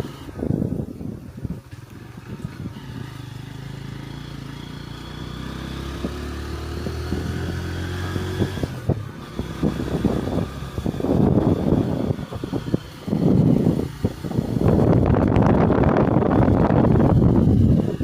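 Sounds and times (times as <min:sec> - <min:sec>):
rough buffeting noise: 0:00.0 - 0:18.0
vehicle engine running: 0:00.0 - 0:18.0.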